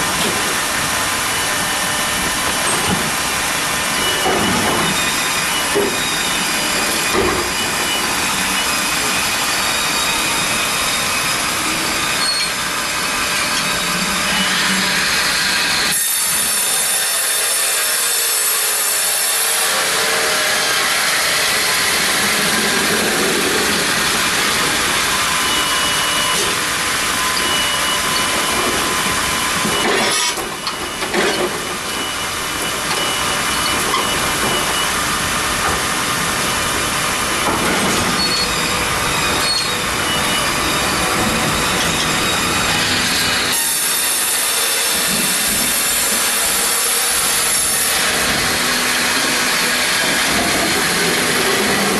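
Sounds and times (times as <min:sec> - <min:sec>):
bandsaw sawing through log: 0:15.8 - 0:24.5.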